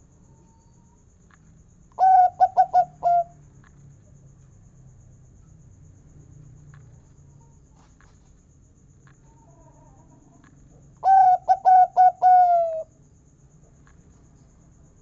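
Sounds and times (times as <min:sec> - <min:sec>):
zebra dove call: 0:02.0 - 0:03.3, 0:11.0 - 0:12.9.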